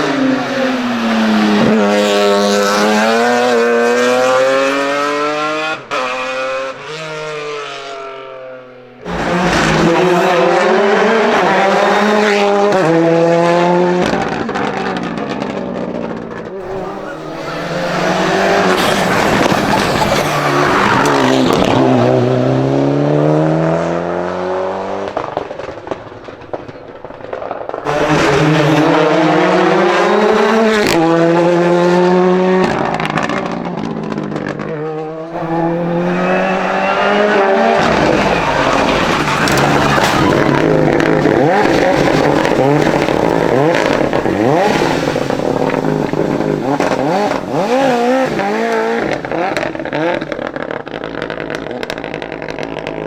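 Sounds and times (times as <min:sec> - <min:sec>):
race car passing: 0:00.0 - 0:25.8, 0:27.7 - 0:50.6
race car engines at full throttle: 0:00.0 - 0:53.0
tyre squeal: 0:09.1 - 0:12.2, 0:16.6 - 0:22.0, 0:35.4 - 0:48.7.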